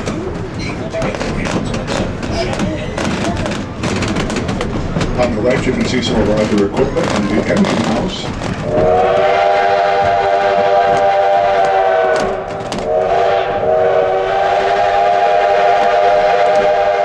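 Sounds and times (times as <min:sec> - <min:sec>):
steam locomotive chord whistle: 0:08.8 - 0:17.0.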